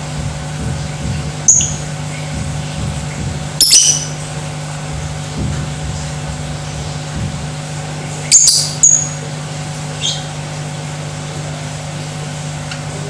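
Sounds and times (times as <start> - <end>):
steady low hum: 0.0 - 13.0
lovebird chirping: 1.5 - 1.8, 3.6 - 4.2, 8.3 - 9.2.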